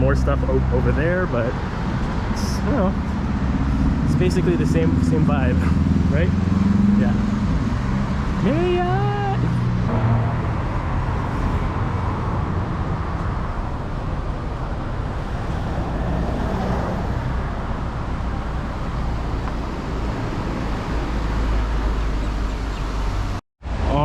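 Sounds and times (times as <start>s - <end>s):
road traffic noise: 0.0s - 23.4s.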